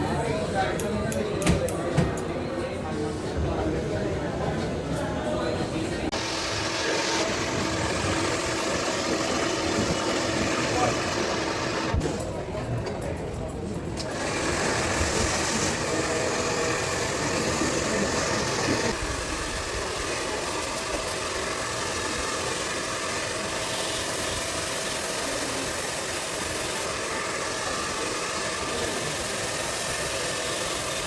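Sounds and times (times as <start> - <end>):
small electric motor with hiss: 6.2 - 12.0, 14.1 - 31.0.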